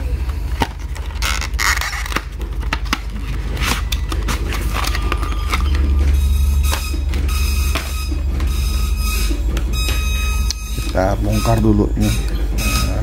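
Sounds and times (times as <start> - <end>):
low hum: 0.0 - 13.0
plastic packaging crinkling: 0.6 - 6.2.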